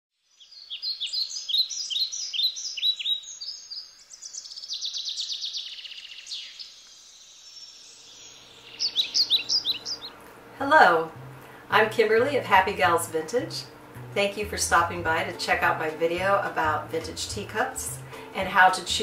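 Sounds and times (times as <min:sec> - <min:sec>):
songbird chirping and trilling: 0:00.2 - 0:10.3.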